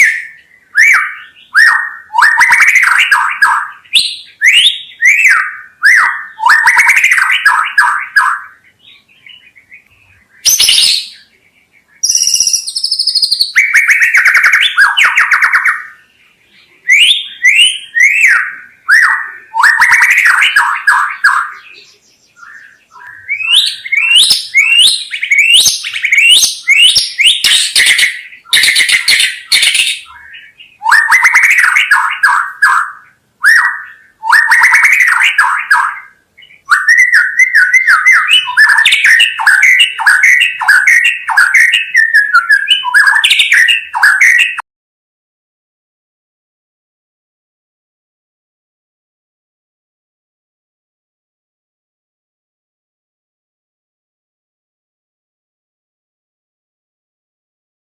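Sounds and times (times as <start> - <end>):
bird singing trills and whistles: 0.0 - 44.6.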